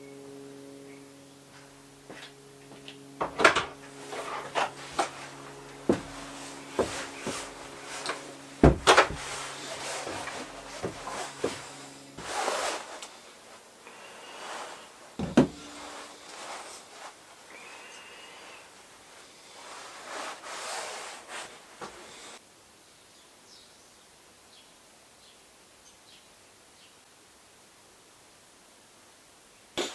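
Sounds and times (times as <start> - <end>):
steady low hum: 0.0 - 20.5.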